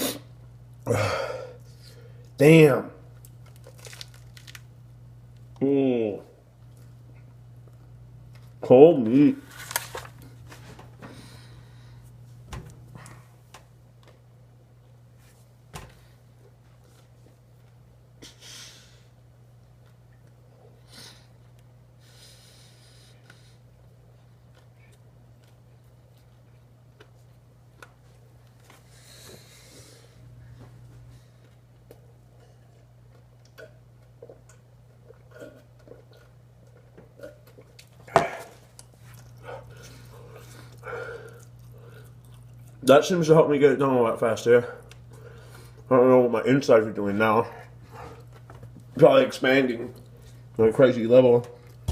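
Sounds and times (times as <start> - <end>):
low electrical hum: 0.0 - 51.9
person chewing: 24.2 - 28.0, 31.4 - 42.8
person eating: 31.3 - 42.8.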